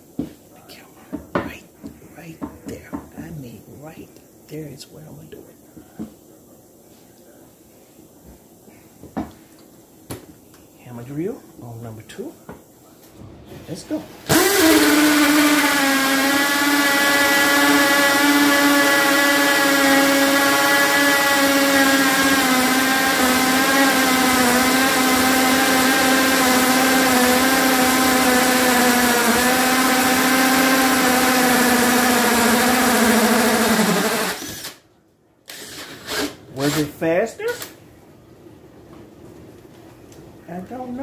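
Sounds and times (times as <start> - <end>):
hammer drill whining under load: 14.3 - 34.8, 35.5 - 36.9.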